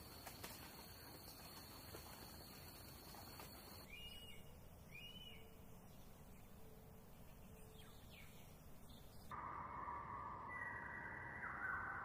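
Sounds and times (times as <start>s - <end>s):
background hiss: 0.0s - 9.3s
faint bird chirps: 2.5s - 12.0s.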